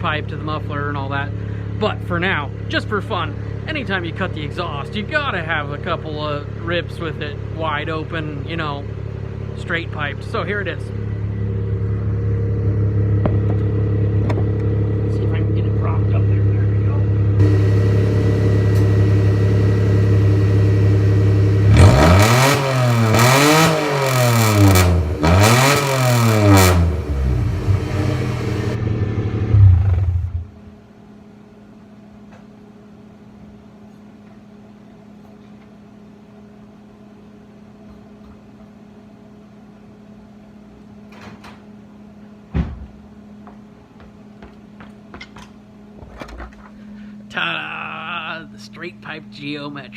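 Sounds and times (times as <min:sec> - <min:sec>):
low steady hum: 0:00.0 - 0:21.8, 0:26.8 - 0:49.9
unmuffled car engine revving: 0:00.0 - 0:30.8.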